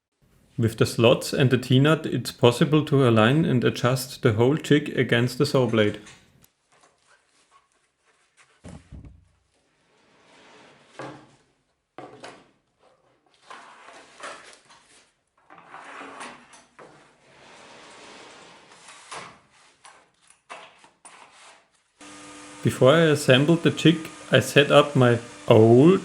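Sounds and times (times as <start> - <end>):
plywood knocking: 8.6 - 9.4
plywood scraping on surface: 10.0 - 11.4, 12.8 - 21.7.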